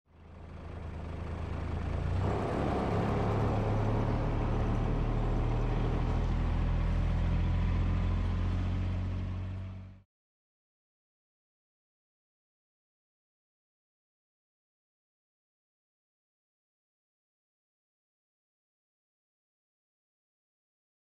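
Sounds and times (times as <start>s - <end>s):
vehicle engine rumbling: 0.1s - 10.0s.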